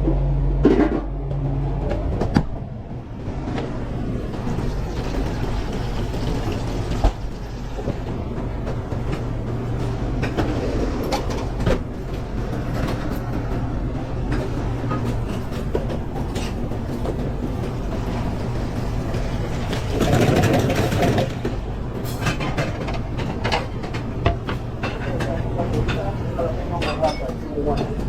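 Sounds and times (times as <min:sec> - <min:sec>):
hum of kitchen extraction: 0:03.9 - 0:28.0
pans and utensils clattering: 0:19.2 - 0:28.0.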